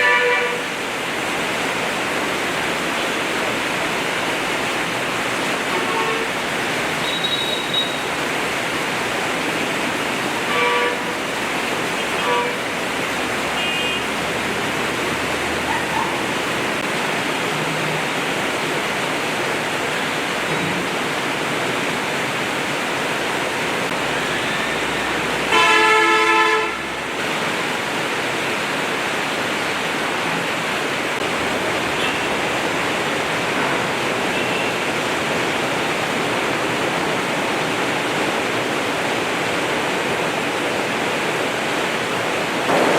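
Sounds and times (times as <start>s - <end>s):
vehicle horn honking: 0.0s - 0.6s, 5.7s - 6.3s, 7.0s - 8.0s, 10.5s - 11.1s, 12.0s - 12.6s, 13.6s - 14.1s, 25.5s - 26.8s, 34.3s - 34.8s
heavy rain pouring: 0.0s - 42.9s.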